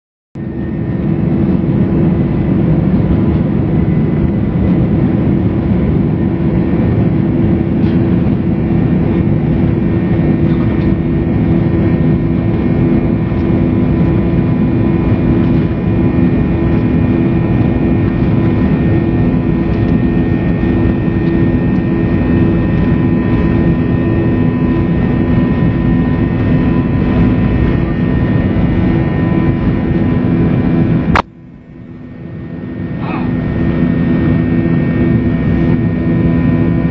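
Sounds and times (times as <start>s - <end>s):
airliner engines heard from cabin: 0.4s - 36.9s.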